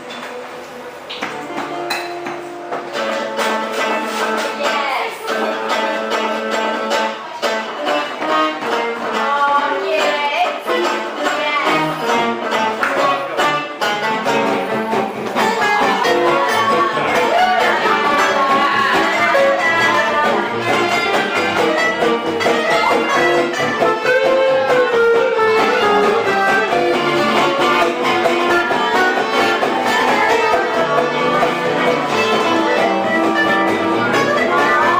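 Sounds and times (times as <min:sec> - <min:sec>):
plucked strings rhythm: 0:01.1 - 0:34.9
bending melody line: 0:07.7 - 0:34.9.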